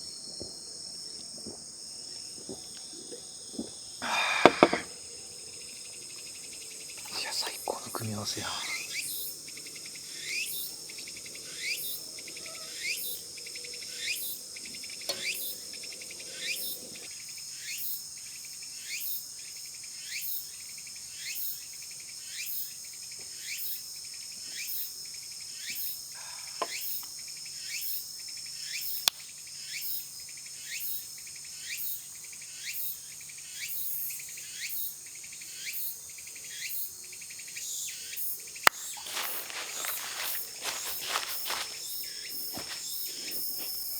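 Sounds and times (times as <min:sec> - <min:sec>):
insect chirp falling in pitch: 0:00.0 - 0:09.3, 0:13.8 - 0:16.8, 0:38.6 - 0:43.9
insect high-pitched trill: 0:01.4 - 0:20.6, 0:25.6 - 0:43.9.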